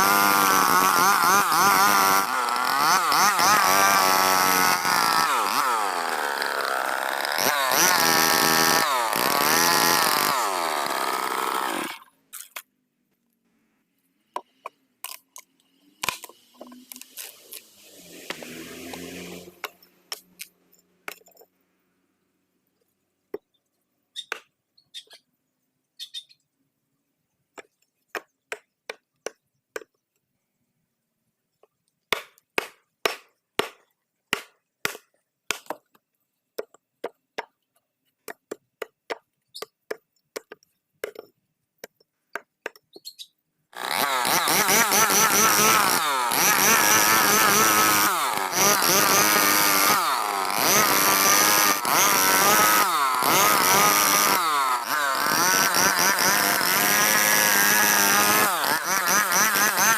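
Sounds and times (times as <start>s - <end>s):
power tool motor whine: 0.0s - 12.0s, 43.8s - 59.9s
wood and tools knocking: 36.6s - 43.0s.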